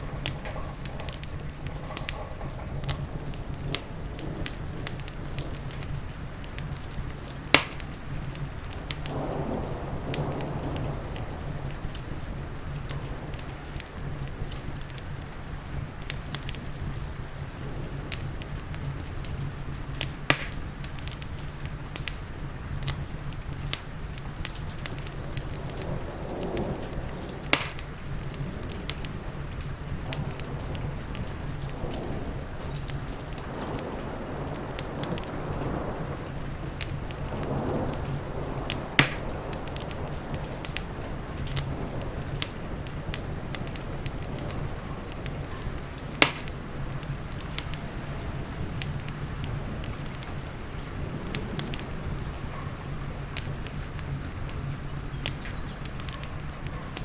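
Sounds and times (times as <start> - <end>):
heavy rain hissing: 0.0 - 57.0
wood fire crackling: 0.0 - 57.0
sharp loud pops: 7.6 - 8.0, 20.2 - 20.6, 27.5 - 28.0, 38.7 - 39.3, 46.2 - 46.6.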